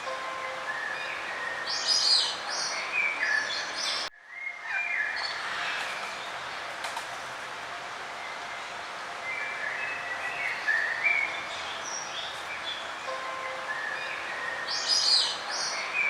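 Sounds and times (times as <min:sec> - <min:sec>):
songbirds chirping: 0:00.0 - 0:16.0
steady background noise: 0:00.0 - 0:16.0.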